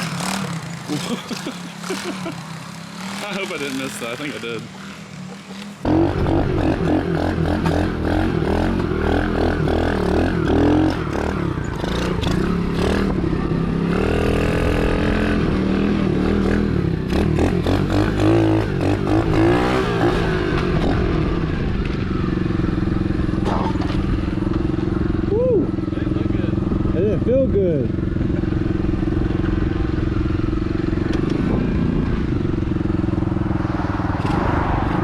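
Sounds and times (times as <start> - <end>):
dirt bike engine revving: 0.0 - 21.7.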